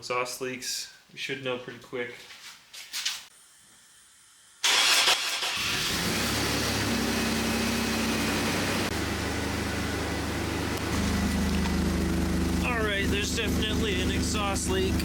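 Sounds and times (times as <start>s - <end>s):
car engine cranking and idling: 4.6s - 15.0s.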